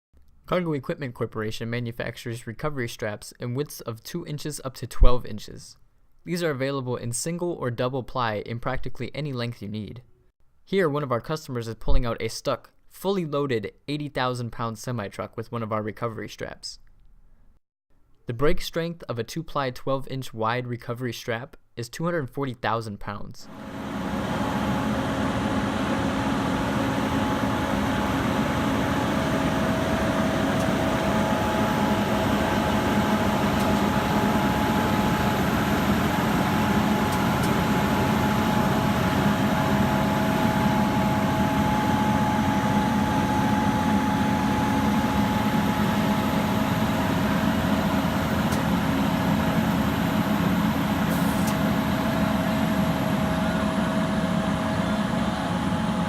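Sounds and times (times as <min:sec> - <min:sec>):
steady high whine: 0:23.5 - 0:56.0
heavy diesel engine rumbling: 0:24.2 - 0:56.0.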